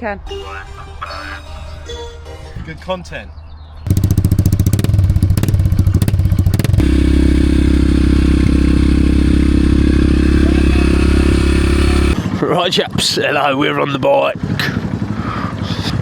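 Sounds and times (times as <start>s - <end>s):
mini bike engine running: 3.9s - 16.0s.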